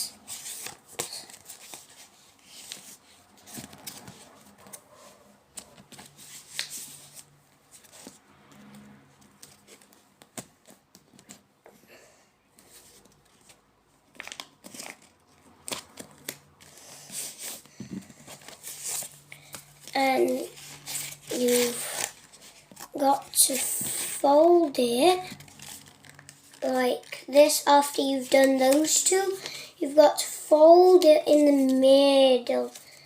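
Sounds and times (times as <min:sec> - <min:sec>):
paper rustling and folding: 0:00.0 - 0:08.2, 0:12.6 - 0:33.0.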